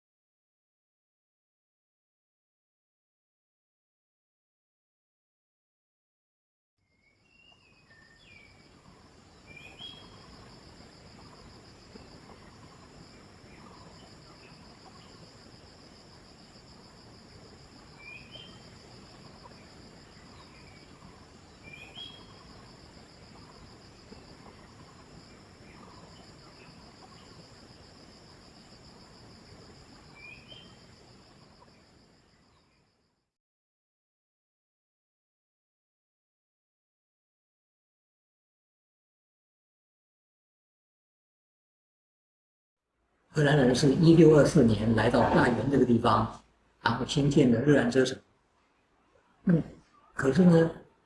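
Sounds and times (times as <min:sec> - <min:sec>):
high insect drone: 0:07.2 - 0:33.2, 0:43.4 - 0:48.1
short bird chirps: 0:18.0 - 0:18.6, 0:20.3 - 0:22.5, 0:30.1 - 0:30.8.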